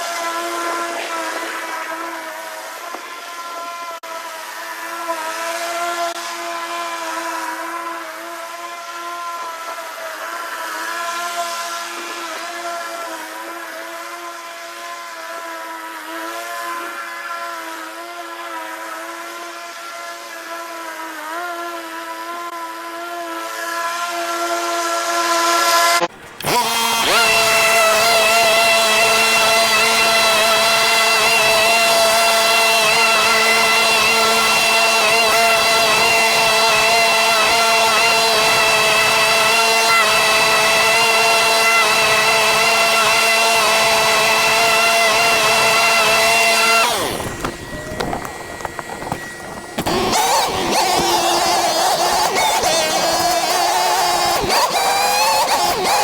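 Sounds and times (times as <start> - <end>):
lawn mower engine running: 26.1 - 56.0.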